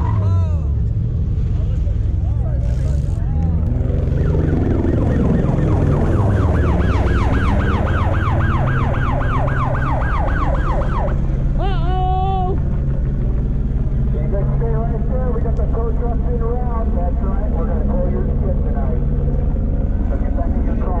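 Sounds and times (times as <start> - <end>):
low engine drone: 0.0 - 21.0
siren yelping: 3.8 - 11.3.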